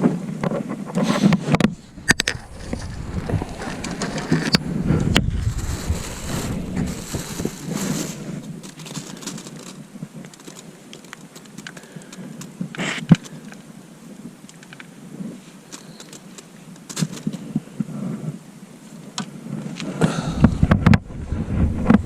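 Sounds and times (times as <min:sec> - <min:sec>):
wind buffeting microphone: 0:00.4 - 0:10.4, 0:19.4 - 0:22.0
gear clicking in boat: 0:06.8 - 0:13.7, 0:15.7 - 0:17.9.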